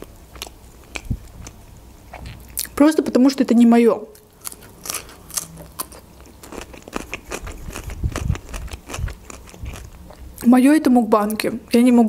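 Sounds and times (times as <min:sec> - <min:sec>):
crunchy cucumber chewing: 0:00.0 - 0:02.8, 0:04.2 - 0:10.4.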